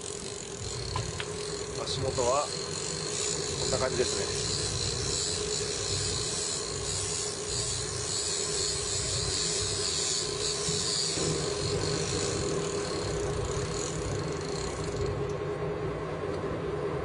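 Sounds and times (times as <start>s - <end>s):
boat engine humming: 0.0s - 16.8s.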